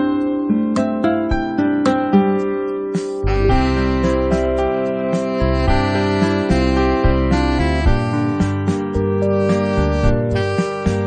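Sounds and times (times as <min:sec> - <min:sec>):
low bass pulse: 0:03.2 - 0:11.0
sustained instrumental notes: 0:03.2 - 0:11.0.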